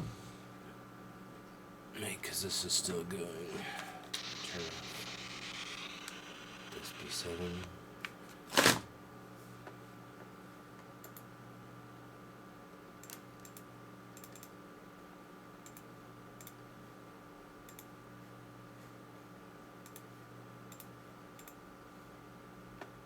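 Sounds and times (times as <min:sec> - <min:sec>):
electrical hum and hiss: 0:00.0 - 0:14.2
computer clicks: 0:04.2 - 0:07.7.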